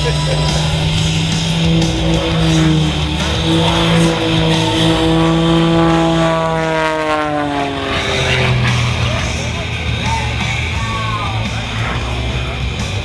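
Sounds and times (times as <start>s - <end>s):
propeller aircraft flying past: 0.0s - 13.0s
rock music: 0.0s - 13.0s.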